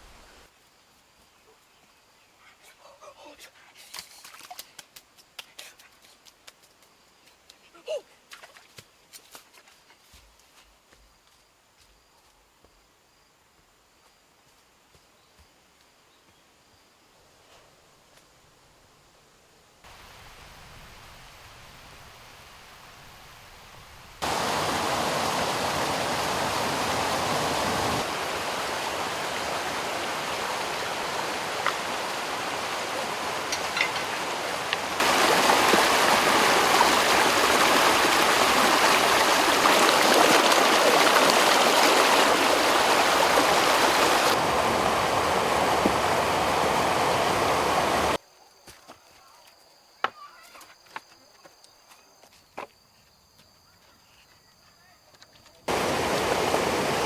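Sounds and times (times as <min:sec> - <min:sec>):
waterfall rushing and splashing: 0:24.2 - 0:48.2, 0:55.7 - 0:57.0.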